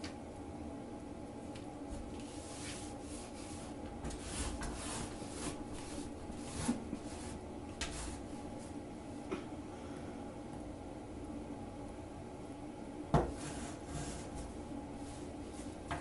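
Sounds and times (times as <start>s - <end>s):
quiet rustling and rubbing: 1.9s - 8.8s, 13.3s - 16.0s.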